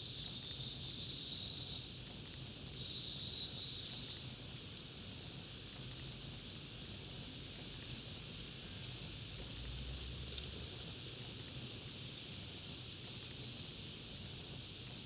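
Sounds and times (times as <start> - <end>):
small pops and snaps: 2.0 - 2.6, 3.8 - 15.0
campfire crackling: 3.9 - 15.0.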